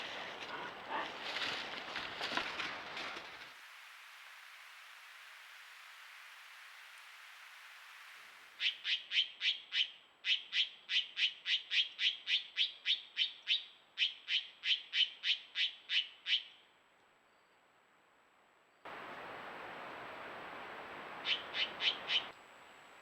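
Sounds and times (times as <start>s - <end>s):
bird calling sharp notes: 21.2s - 22.3s.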